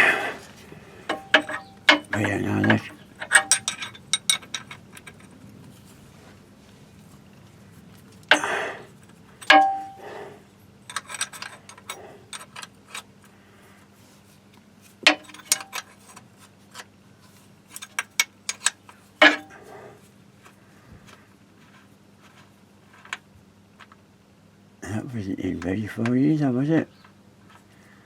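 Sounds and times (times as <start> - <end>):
tools knocking on metal: 1.1 - 4.8
light clicks and rattles: 1.1 - 5.9, 10.8 - 13.3.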